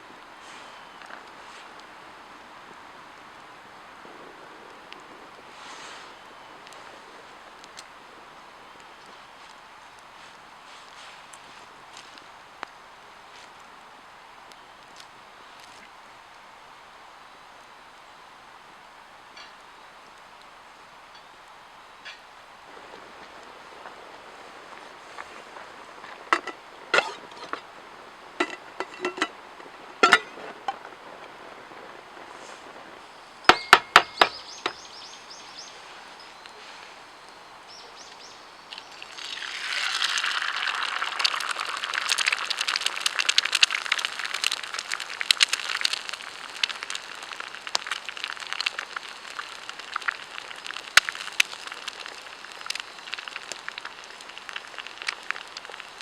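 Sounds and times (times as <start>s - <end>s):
food sizzling and crackling: 22.6s - 36.5s, 38.7s - 56.0s
metallic clinks: 30.0s - 30.4s.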